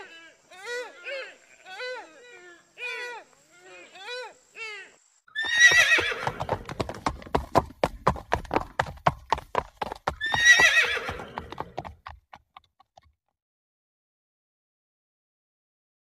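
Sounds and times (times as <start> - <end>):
horse whinnying: 5.3 - 6.8, 10.1 - 11.8
horse hooves clip-clopping: 5.4 - 13.4.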